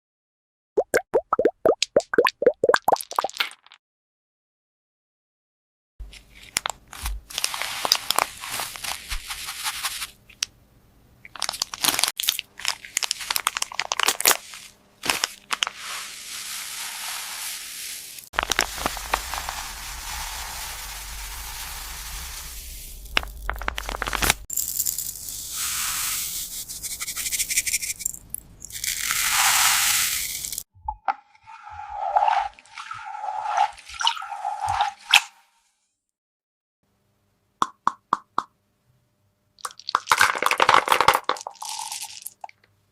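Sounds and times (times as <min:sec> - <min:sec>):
crinkling and rustling: 0:06.0 - 0:10.5, 0:11.3 - 0:16.2, 0:18.4 - 0:20.0, 0:23.1 - 0:24.6
steady hiss: 0:15.9 - 0:23.1.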